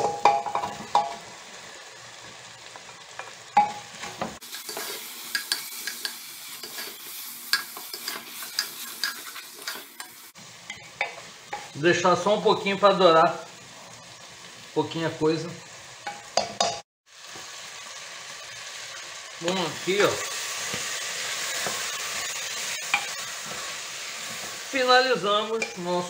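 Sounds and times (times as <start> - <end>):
food sizzling in a pot: 0.0 - 26.0
spoon clicking and scraping a pot: 4.7 - 11.6.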